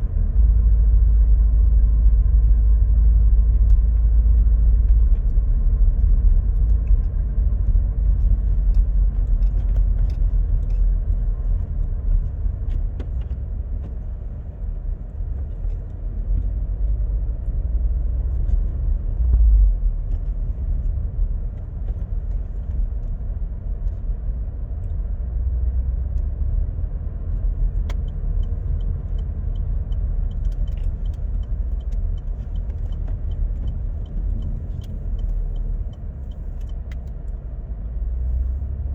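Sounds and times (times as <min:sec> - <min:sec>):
car driving rumble and drone: 0:00.0 - 0:38.9
light ticks and rattles: 0:03.6 - 0:17.6, 0:27.3 - 0:38.6.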